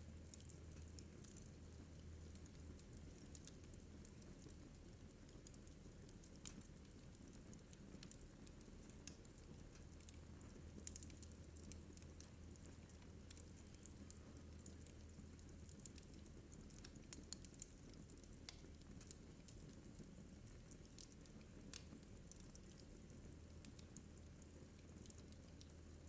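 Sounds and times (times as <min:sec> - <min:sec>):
wood fire crackling: 0:00.1 - 0:26.0.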